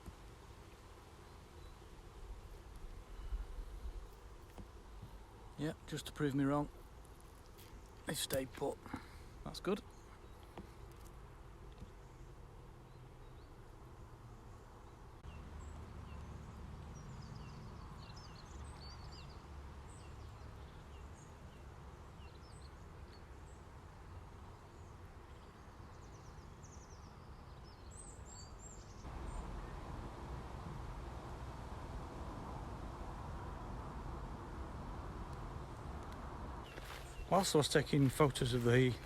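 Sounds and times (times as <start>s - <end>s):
small birds chirping: 0.0s - 29.8s, 35.2s - 39.0s
low outdoor rumble: 29.1s - 39.0s.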